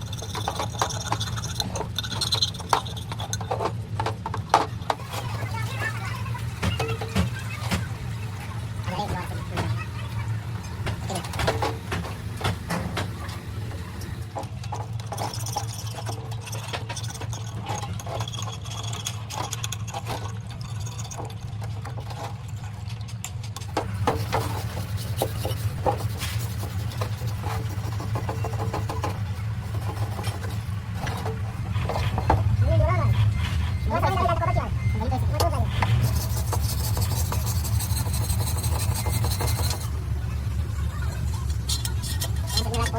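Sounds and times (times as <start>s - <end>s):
engine running: 0.0s - 42.9s
metallic clicks and rattles: 14.0s - 24.6s, 40.8s - 42.9s.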